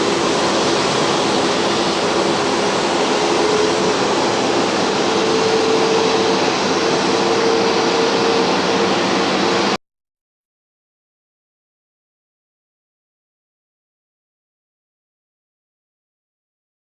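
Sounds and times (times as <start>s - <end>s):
jet engines running: 0.0s - 9.8s.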